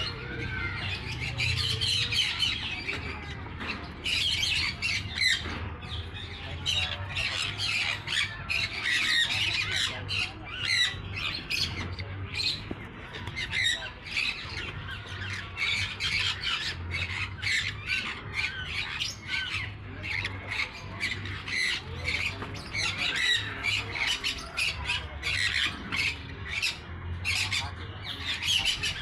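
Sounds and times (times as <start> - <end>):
birds squawking: 0.0 - 29.0.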